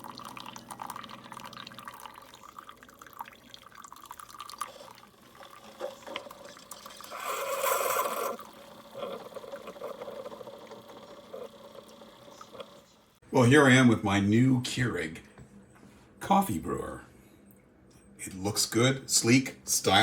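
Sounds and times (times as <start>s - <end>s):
coffee dripping into a cup: 0.0s - 12.9s.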